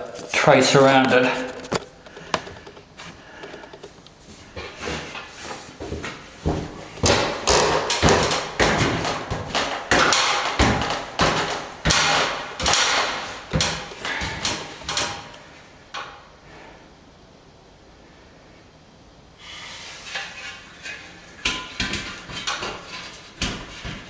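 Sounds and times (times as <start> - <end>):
tool scraping plaster: 4.6 - 15.4, 19.4 - 24.0
hand tool knocking on plaster: 5.8 - 15.4.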